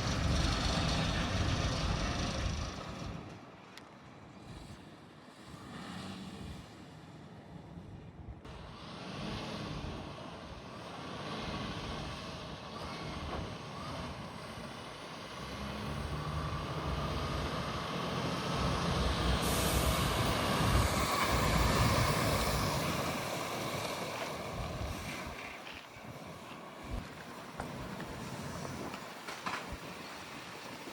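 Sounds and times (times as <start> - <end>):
truck diesel engine running: 0.0 - 3.2, 12.7 - 25.4.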